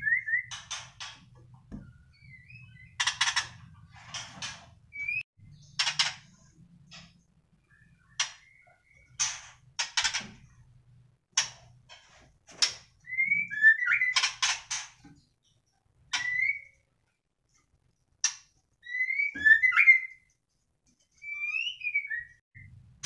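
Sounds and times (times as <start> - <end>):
bird whistling: 0.0 - 0.6, 13.0 - 14.2, 16.2 - 16.8, 18.8 - 20.3, 21.2 - 22.4.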